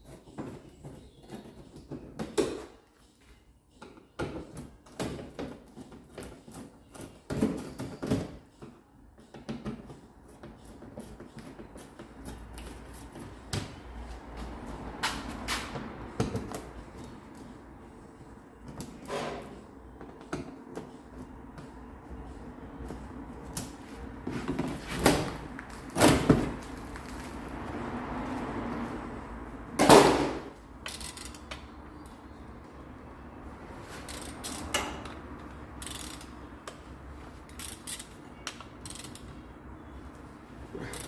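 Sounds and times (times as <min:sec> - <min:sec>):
hand tools clicking and scraping: 0:33.9 - 0:36.8.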